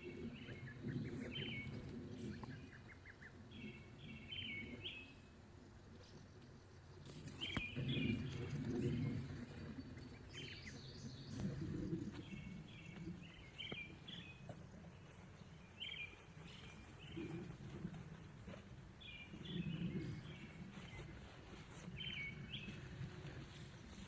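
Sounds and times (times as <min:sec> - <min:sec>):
low rumble: 0:00.0 - 0:24.0
small birds chirping: 0:06.0 - 0:24.0.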